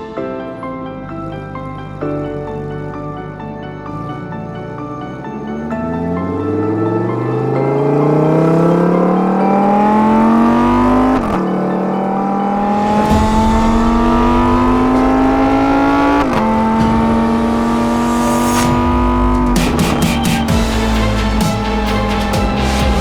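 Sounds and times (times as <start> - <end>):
car engine accelerating through gears: 4.0 - 22.1.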